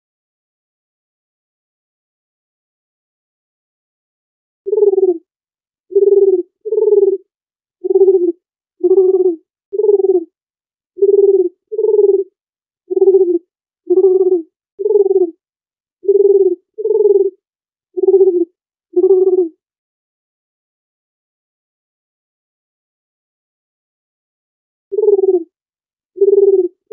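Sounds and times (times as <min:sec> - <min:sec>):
dove cooing: 0:04.7 - 0:05.2, 0:05.9 - 0:07.2, 0:07.8 - 0:10.3, 0:11.0 - 0:12.3, 0:12.9 - 0:15.4, 0:16.0 - 0:17.4, 0:18.0 - 0:19.5, 0:24.9 - 0:25.5, 0:26.2 - 0:26.9.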